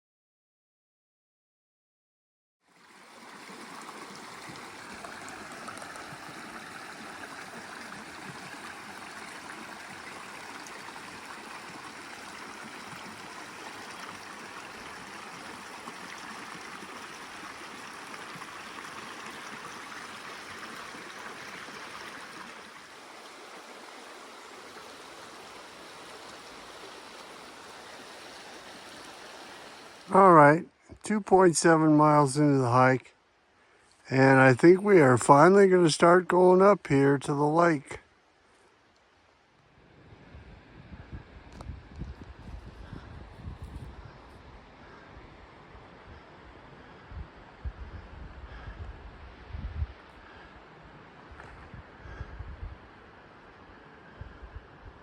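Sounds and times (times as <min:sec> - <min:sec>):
stream flowing: 0:02.6 - 0:41.4.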